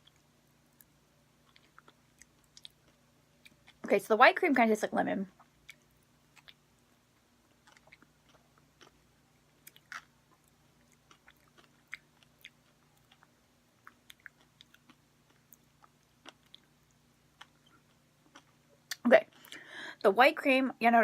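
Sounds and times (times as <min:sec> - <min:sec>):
cookie chewing crunches: 0:00.0 - 0:03.9, 0:05.3 - 0:06.8, 0:07.4 - 0:19.6
low steady hum: 0:00.0 - 0:21.0.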